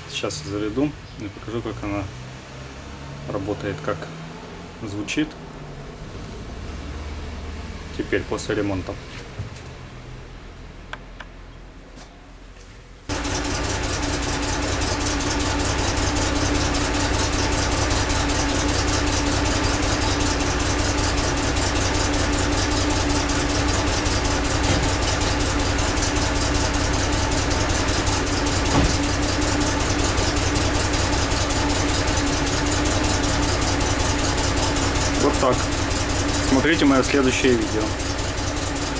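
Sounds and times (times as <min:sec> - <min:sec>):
car engine idling: 0:13.1 - 0:38.9.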